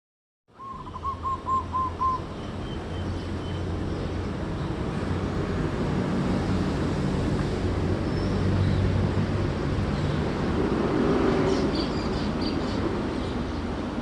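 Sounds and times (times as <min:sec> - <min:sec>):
dove cooing: 0:00.6 - 0:02.3.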